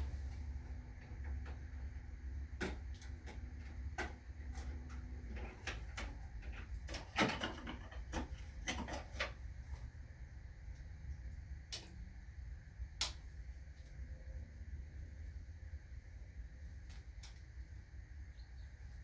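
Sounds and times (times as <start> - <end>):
objects clicking and knocking: 2.6 - 9.4.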